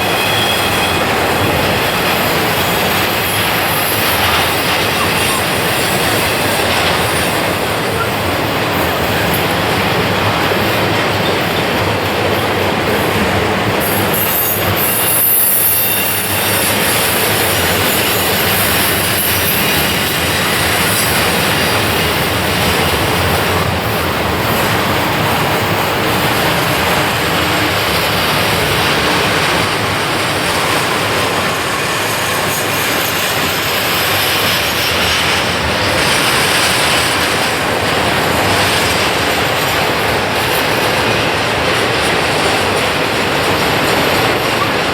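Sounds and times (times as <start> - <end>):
high-pitched flange squeal: 0.0 - 2.1, 13.8 - 21.9
train wheels clattering over rails: 0.0 - 44.9.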